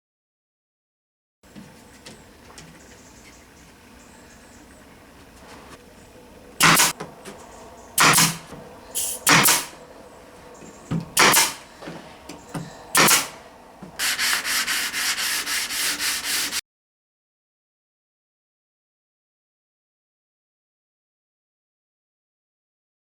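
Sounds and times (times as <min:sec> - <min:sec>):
sandpaper rubbing wood: 0:14.0 - 0:16.6.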